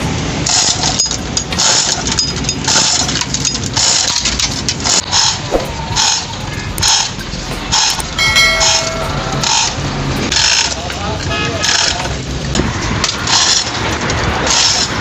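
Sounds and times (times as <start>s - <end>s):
engine rumbling: 0.0s - 11.3s.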